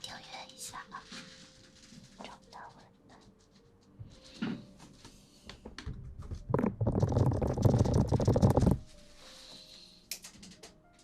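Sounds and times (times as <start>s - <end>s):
fingers scratching on microphone: 6.2s - 8.9s.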